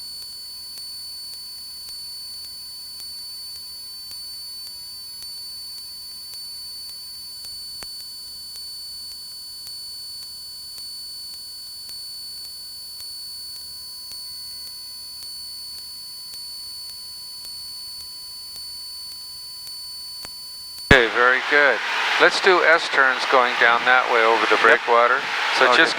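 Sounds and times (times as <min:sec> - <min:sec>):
electrical whine and buzz: 0:20.9 - 0:25.9
faint hiss: 0:20.9 - 0:25.9.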